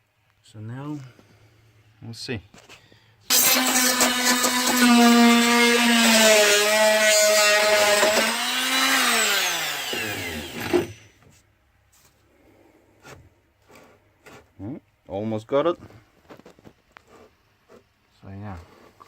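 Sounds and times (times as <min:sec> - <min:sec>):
oscillating multi-tool cutting nails: 0:03.3 - 0:11.1.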